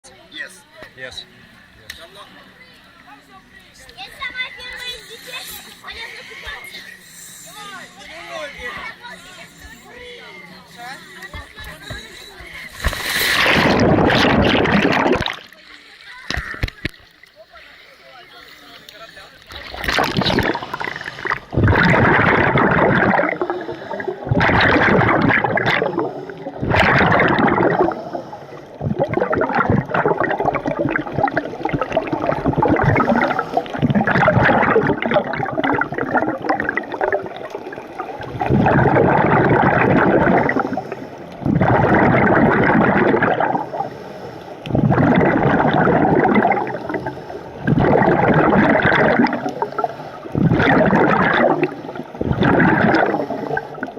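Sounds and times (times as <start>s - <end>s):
exhaled bubbles gurgling: 12.8s - 15.6s, 19.5s - 44.0s, 44.6s - 53.9s.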